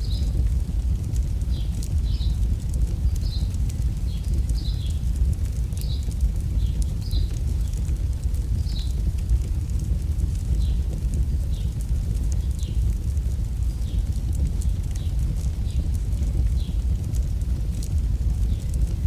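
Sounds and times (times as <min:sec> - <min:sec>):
campfire crackling pops: 0:00.0 - 0:19.0
deep rumble: 0:00.0 - 0:19.0.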